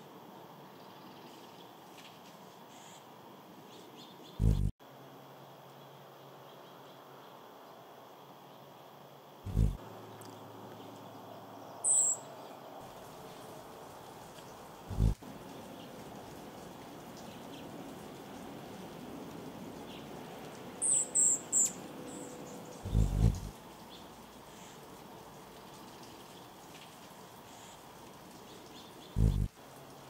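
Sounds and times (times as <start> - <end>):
steady hiss: 0.0 - 30.0
brief low thumps: 4.4 - 4.7.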